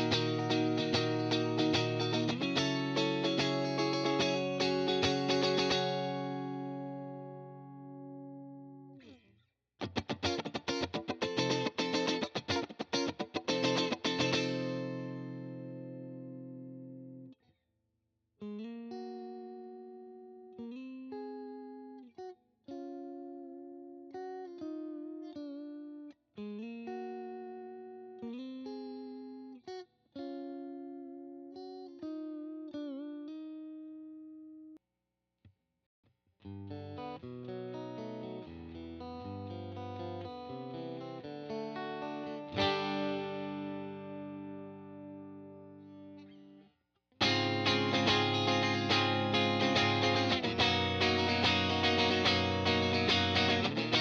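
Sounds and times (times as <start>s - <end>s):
clean electric guitar: 0.0s - 9.2s, 9.8s - 17.4s, 36.5s - 46.6s, 47.2s - 54.0s.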